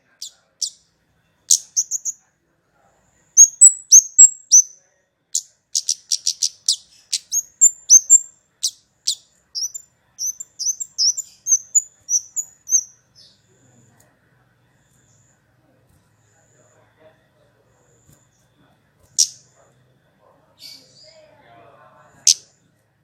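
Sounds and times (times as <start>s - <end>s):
songbird chirping: 0.0s - 22.8s.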